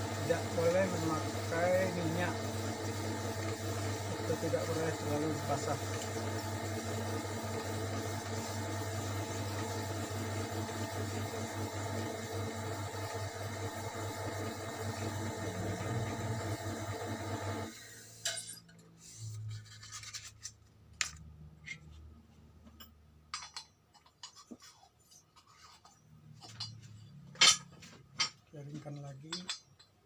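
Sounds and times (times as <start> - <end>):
electric motor humming: 0.0 - 17.8.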